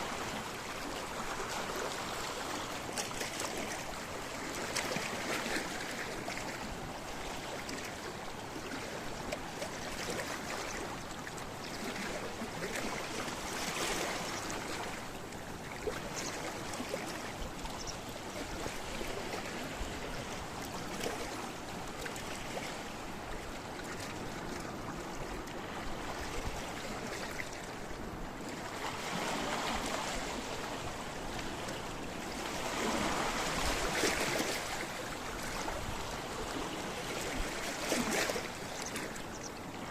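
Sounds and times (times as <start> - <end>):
waves washing against rocky shore: 28.8 - 38.9.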